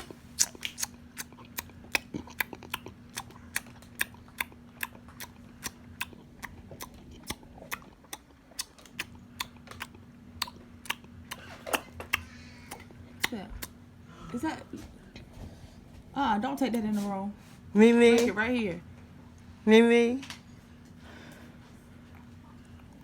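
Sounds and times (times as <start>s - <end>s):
gums smacking while chewing: 0.0s - 13.8s.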